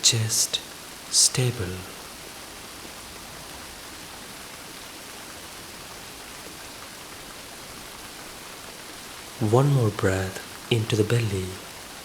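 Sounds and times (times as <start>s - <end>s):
light rain: 0.0s - 12.0s.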